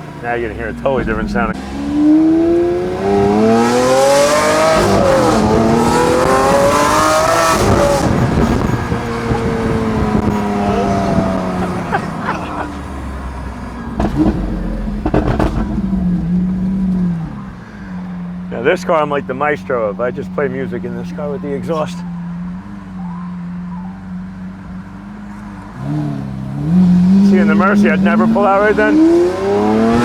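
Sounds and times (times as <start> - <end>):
sharp exhaust cracks: 0.0 - 18.4
sports car engine accelerating: 0.0 - 30.0.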